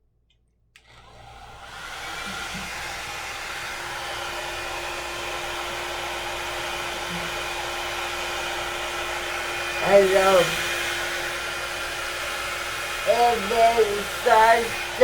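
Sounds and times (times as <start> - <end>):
hair dryer whirring: 0.8 - 15.0.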